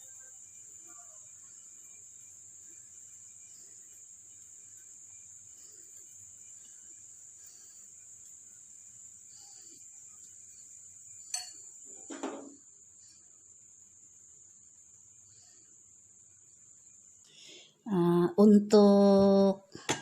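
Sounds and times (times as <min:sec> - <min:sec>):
faint high-pitched whine: 0:00.0 - 0:20.0.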